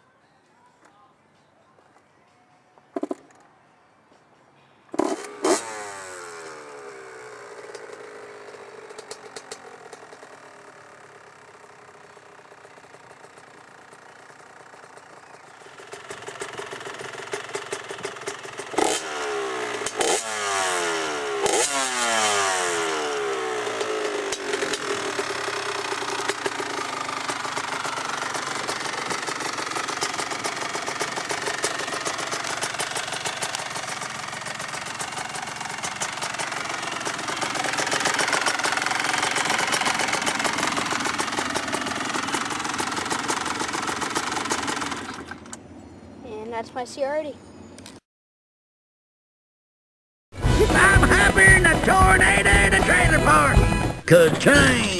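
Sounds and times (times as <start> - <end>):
dirt bike kick-start: 4.9 - 45.6, 50.4 - 54.9
two-stroke engine idling: 5.0 - 45.6, 50.4 - 54.9
engine throttle blips: 50.4 - 54.9.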